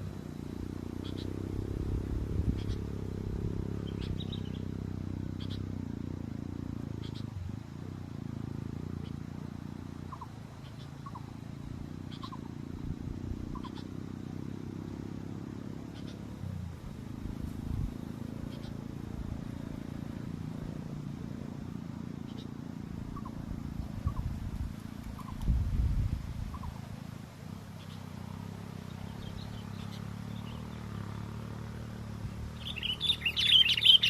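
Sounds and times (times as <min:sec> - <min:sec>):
faint bird chirps: 0:00.0 - 0:06.2, 0:07.0 - 0:07.6, 0:08.9 - 0:14.6, 0:15.6 - 0:21.5, 0:22.2 - 0:24.5, 0:25.1 - 0:25.6, 0:26.4 - 0:26.9, 0:27.6 - 0:34.0
wind buffeting microphone: 0:01.5 - 0:04.4, 0:23.3 - 0:26.9.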